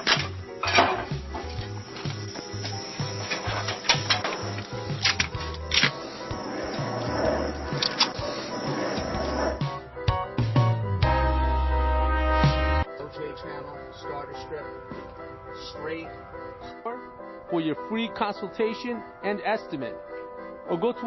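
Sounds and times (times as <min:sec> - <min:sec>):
music with pulsing bass beat: 0:00.0 - 0:12.9
sustained keyboard chords: 0:00.0 - 0:21.0
steady bass: 0:09.1 - 0:12.9.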